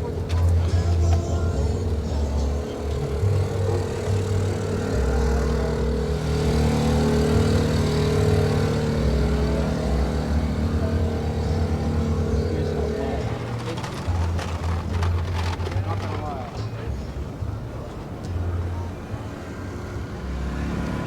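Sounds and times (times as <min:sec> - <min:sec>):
car engine running: 0:00.0 - 0:21.0.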